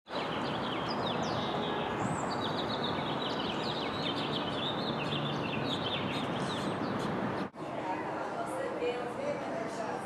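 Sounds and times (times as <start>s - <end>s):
small birds chirping: 0.1s - 7.5s
outdoor background noise: 0.1s - 10.0s.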